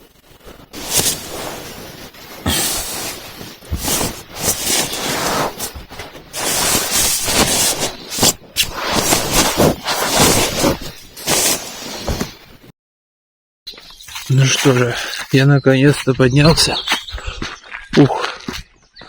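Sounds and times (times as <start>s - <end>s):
fabric rustling: 0.1s - 12.7s.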